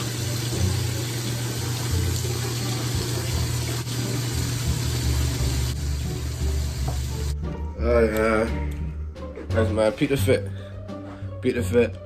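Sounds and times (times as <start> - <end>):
water running: 0.0 - 7.5.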